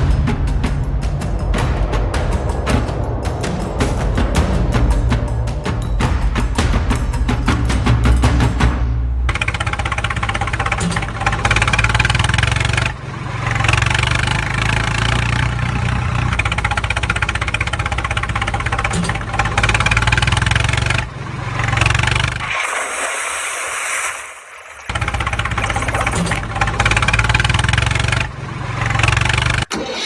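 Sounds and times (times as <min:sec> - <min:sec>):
drum-heavy music: 0:00.0 - 0:09.3
engine with rapid firing beat: 0:00.0 - 0:22.5, 0:24.9 - 0:29.7.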